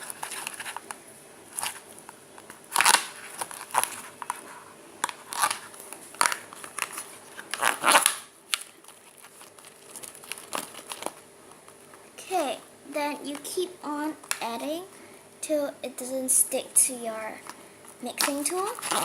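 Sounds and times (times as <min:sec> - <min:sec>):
slime being stirred: 0:02.7 - 0:12.6, 0:18.0 - 0:19.0.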